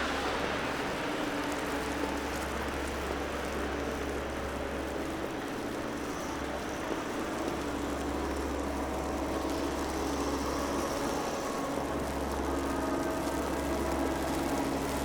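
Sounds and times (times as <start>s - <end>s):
city street noise: 0.0s - 15.0s.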